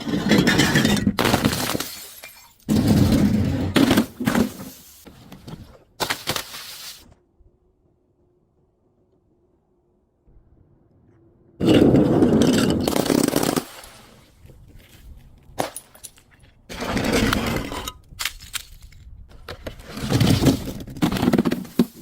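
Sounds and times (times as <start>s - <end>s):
scattered cracks and crackles: 4.0s - 7.2s, 12.7s - 22.0s
brittle objects breaking and crunching: 18.1s - 19.1s.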